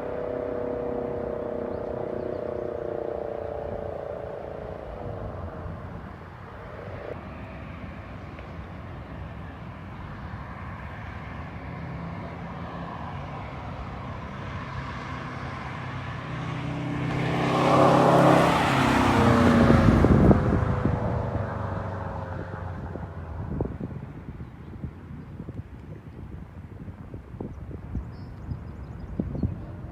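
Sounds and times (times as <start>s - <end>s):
car engine passing by: 0.0s - 8.8s, 9.5s - 24.2s.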